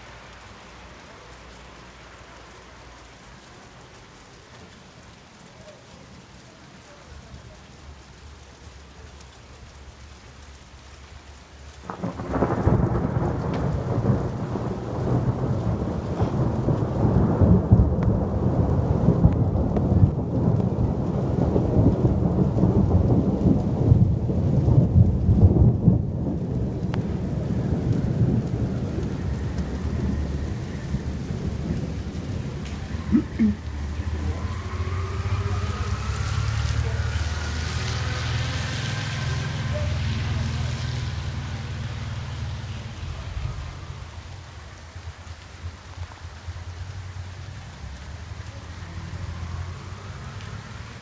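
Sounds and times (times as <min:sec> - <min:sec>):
rain falling softly: 0:00.0 - 0:51.0
thunderclap and rumbling thunder: 0:11.8 - 0:47.0.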